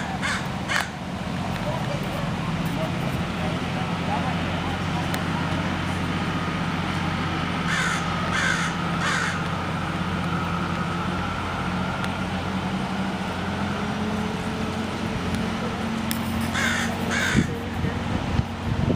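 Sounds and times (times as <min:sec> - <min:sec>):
crow cawing: 0:00.0 - 0:01.0, 0:07.6 - 0:09.5, 0:16.5 - 0:17.6
low engine hum: 0:00.0 - 0:18.9.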